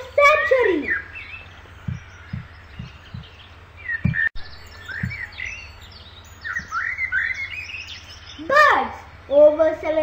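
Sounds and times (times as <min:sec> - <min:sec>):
birds chirping: 0:00.0 - 0:10.0
steady low hum: 0:00.0 - 0:10.0
soft low thumps: 0:01.4 - 0:05.8.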